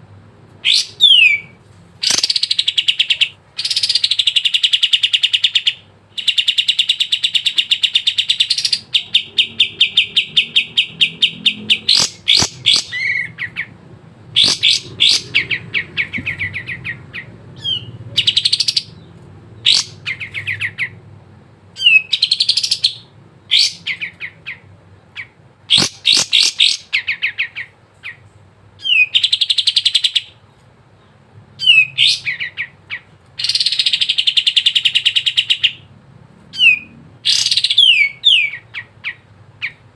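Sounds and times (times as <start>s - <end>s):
songbird chattering trills: 0.6s - 21.0s, 21.8s - 28.2s.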